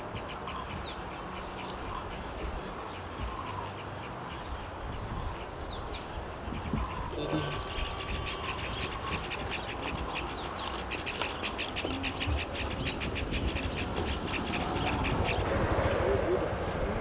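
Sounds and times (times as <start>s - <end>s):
bird chirping rapidly: 0.0s - 15.5s.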